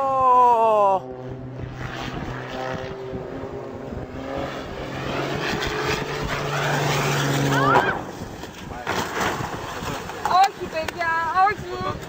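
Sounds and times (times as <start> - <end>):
aircraft engine drone: 0.0 - 8.8.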